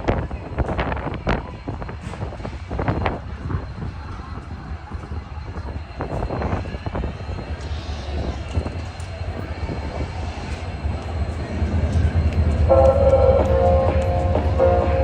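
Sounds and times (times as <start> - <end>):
train rumbling on tracks: 0.0 - 15.0
train horn: 12.6 - 15.0.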